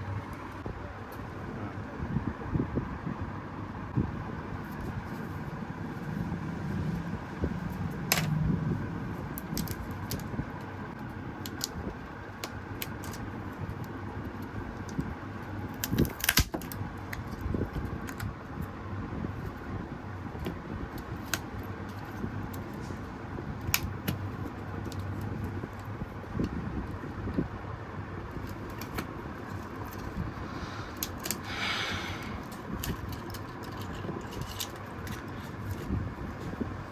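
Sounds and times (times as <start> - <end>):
steady background hum: 0.0 - 36.9.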